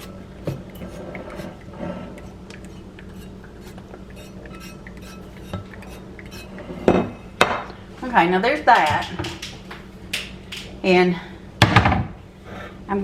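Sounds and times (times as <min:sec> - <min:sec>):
steady low hum: 0:00.0 - 0:13.0
dishes and utensils clinking: 0:02.2 - 0:07.7.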